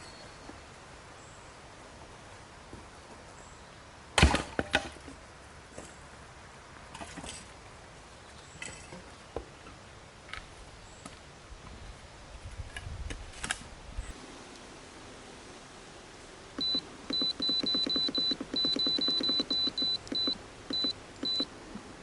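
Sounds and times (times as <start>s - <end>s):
clicks: 16.6s - 21.5s.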